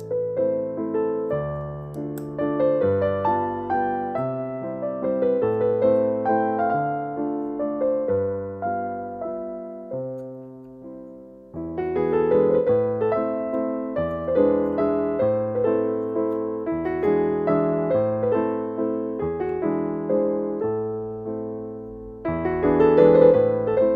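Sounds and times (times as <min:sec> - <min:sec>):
piano music: 0:00.0 - 0:23.9.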